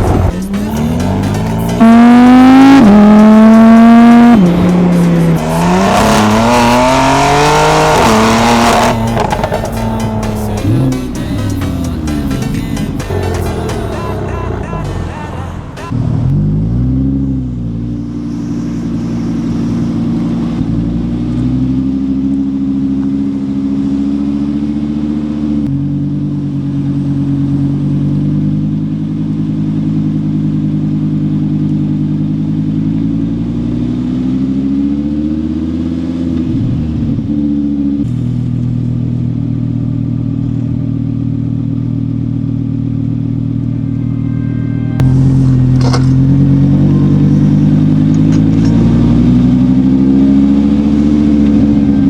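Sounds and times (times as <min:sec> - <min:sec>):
sports car engine revving: 0:00.0 - 0:52.0.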